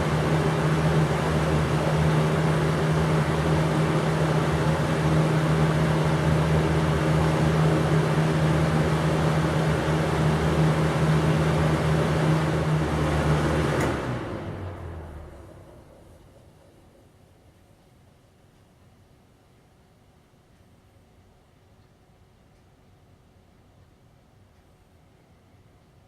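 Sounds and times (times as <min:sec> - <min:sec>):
rush of air from fan blades: 0:00.0 - 0:17.2
box fan motor hum: 0:00.0 - 0:18.3.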